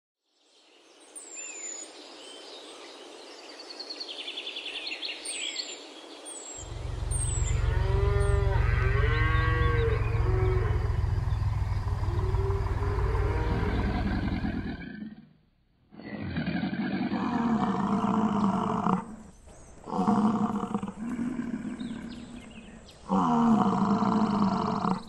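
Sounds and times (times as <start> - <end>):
small birds chirping: 0.4 - 14.9, 17.6 - 25.0
loud low rumble: 6.6 - 14.8
cattle mooing: 6.7 - 14.9.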